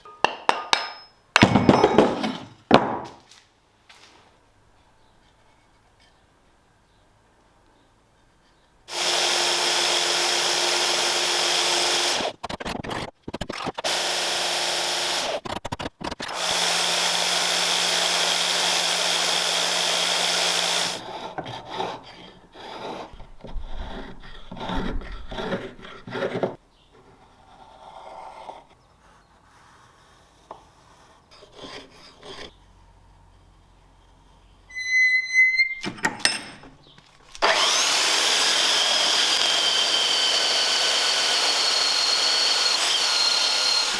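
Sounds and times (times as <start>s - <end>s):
hand tool scraping and knocking: 0.0s - 3.2s, 19.8s - 27.4s
electric power tool running: 8.9s - 12.3s, 13.9s - 15.4s, 16.3s - 21.0s, 37.4s - 43.9s.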